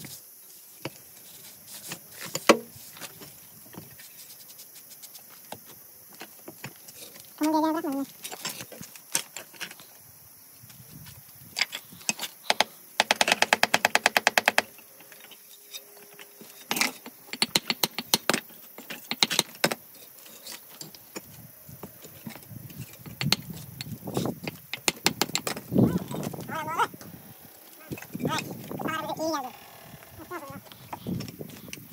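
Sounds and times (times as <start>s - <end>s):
hand tools tapping on stone: 23.0s - 25.7s.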